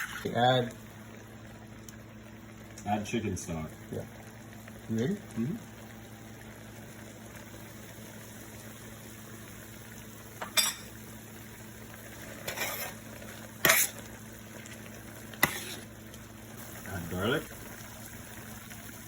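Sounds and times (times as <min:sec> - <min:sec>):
utensil scraping cooking pot: 0:00.0 - 0:00.3, 0:12.1 - 0:15.9.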